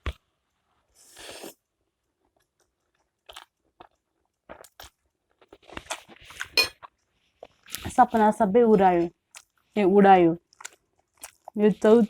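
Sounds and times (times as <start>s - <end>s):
chewing clicks and smacks: 10.5s - 11.6s.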